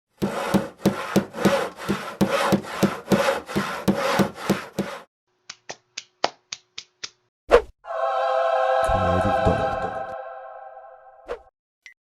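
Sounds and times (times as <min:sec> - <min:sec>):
hand saw cutting wood: 0:00.1 - 0:05.1.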